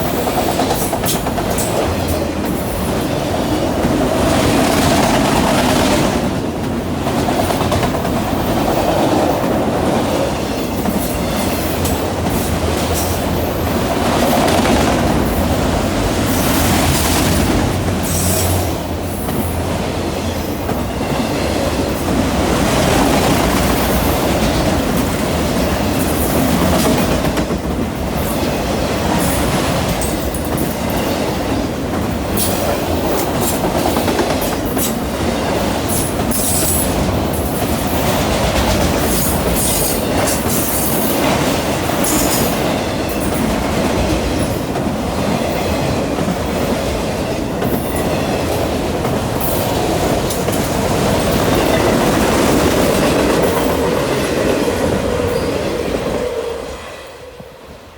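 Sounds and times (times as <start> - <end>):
wheels clicking over rail joints: 0.0 - 19.6
freight train rolling past: 0.0 - 57.9.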